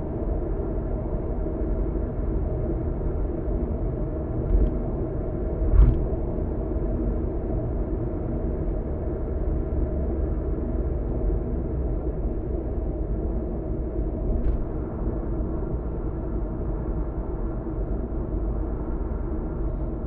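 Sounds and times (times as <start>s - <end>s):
car driving road rumble: 3.9s - 7.6s, 9.3s - 20.0s.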